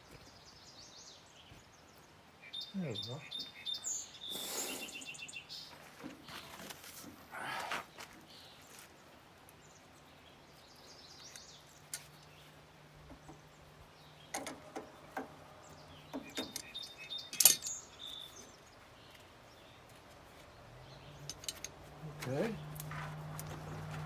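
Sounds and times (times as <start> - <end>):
metallic clicks of hand tools: 16.3 - 17.8, 21.2 - 21.8
metal clank: 17.3 - 17.8.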